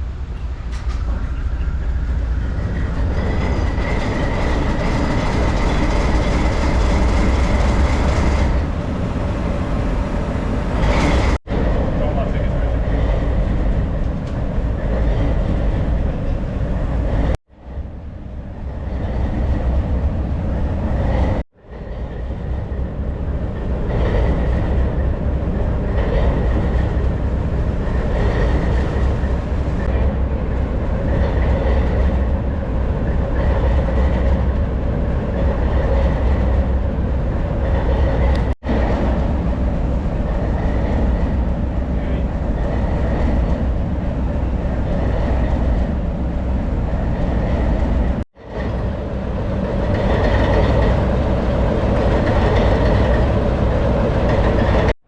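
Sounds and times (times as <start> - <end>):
diesel locomotive engine rumbling: 0.0 - 55.0.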